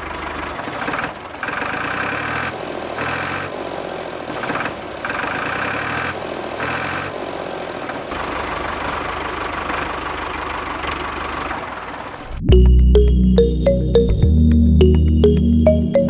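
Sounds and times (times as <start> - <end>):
loud music: 12.5 - 16.0.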